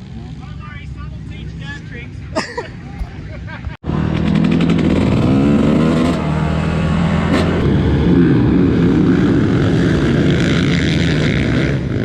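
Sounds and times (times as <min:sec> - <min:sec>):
dirt bike engine revving: 0:03.0 - 0:10.4.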